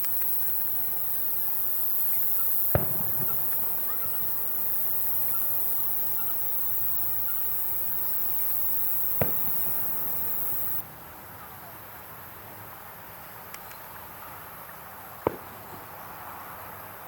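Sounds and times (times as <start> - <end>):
fireworks bursting: 0.0 - 10.8, 15.2 - 16.0
steady high-pitched hiss: 0.0 - 17.0
rumble after firework: 2.4 - 6.2.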